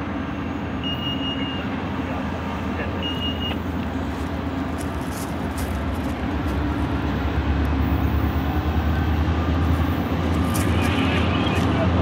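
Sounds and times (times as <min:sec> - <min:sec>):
diesel locomotive engine rumble: 0:00.0 - 0:12.0.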